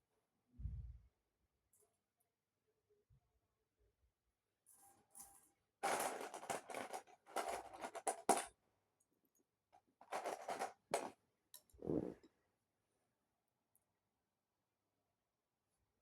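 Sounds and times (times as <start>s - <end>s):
plastic bricks clattering: 5.8s - 8.5s, 10.0s - 11.1s.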